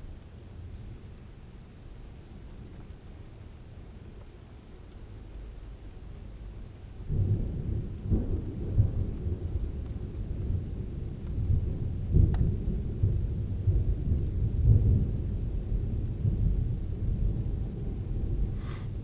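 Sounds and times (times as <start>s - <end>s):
thunder rumbling: 6.8s - 19.0s.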